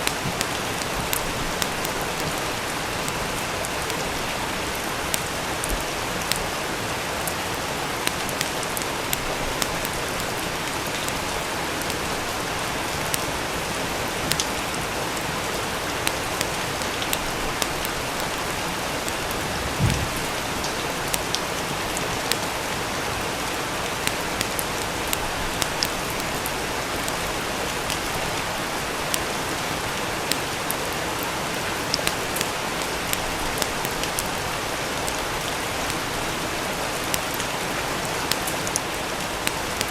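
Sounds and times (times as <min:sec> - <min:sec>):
wood fire crackling: 0:00.0 - 0:13.5, 0:14.2 - 0:39.9
steady rain: 0:00.0 - 0:39.9
dull thump: 0:19.7 - 0:20.4.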